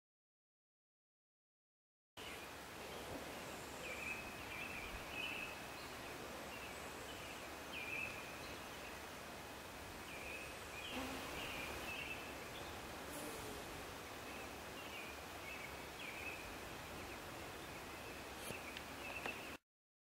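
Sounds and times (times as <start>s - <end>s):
outdoor hiss: 2.2s - 19.6s
birds calling: 10.0s - 19.6s.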